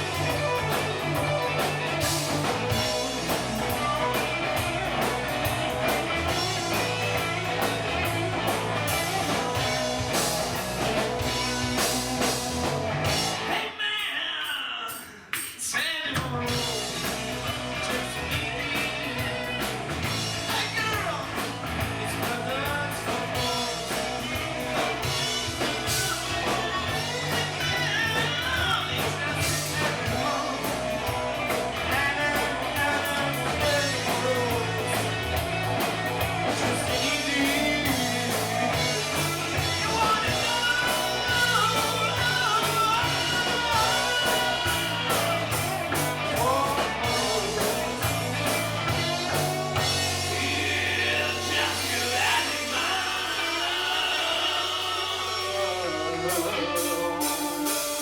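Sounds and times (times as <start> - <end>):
steady drum beat: 0.0 - 13.5, 16.3 - 53.3
bass guitar: 0.0 - 13.7, 16.2 - 58.0
electric guitar: 0.0 - 13.8, 16.2 - 58.0
person singing: 36.5 - 48.2, 49.1 - 58.0.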